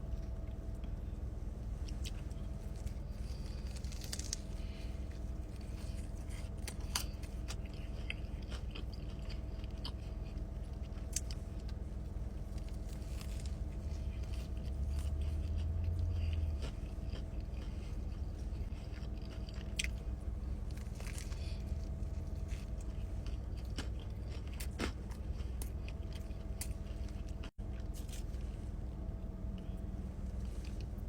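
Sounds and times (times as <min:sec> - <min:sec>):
steady low hum: 0:00.0 - 0:31.0
person chewing food: 0:00.1 - 0:31.0
sharp crunches: 0:02.0 - 0:04.9.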